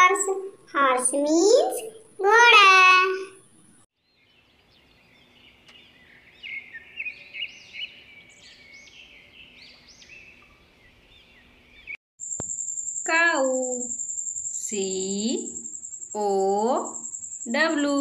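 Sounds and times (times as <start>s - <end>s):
birds chirping: 0.0s - 12.0s
outdoor background noise: 0.0s - 18.0s.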